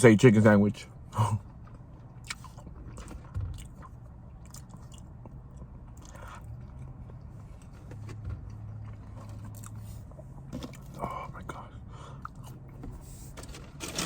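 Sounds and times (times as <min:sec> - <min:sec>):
low steady hum: 0:00.0 - 0:14.0
small crunches and wet clicks: 0:01.4 - 0:09.8
person chewing food: 0:01.4 - 0:11.1.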